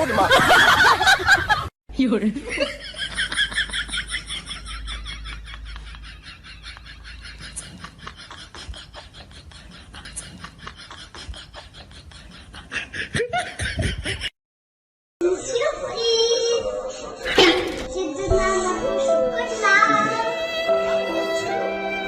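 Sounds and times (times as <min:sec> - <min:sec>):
person laughing breathily: 0:07.1 - 0:14.3.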